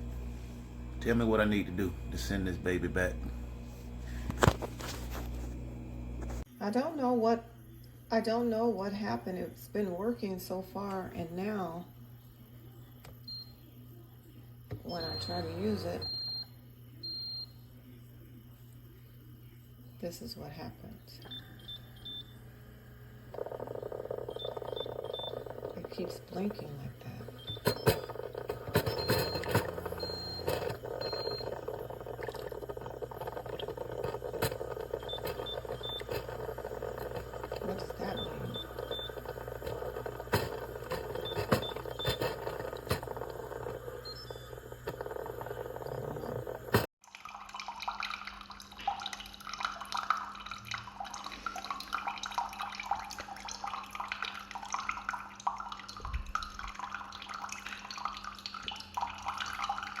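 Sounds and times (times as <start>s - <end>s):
steady low hum: 0.0s - 6.5s, 11.2s - 46.9s
water sputtering and dripping: 23.4s - 60.0s
clicks and handling noise: 27.5s - 46.9s.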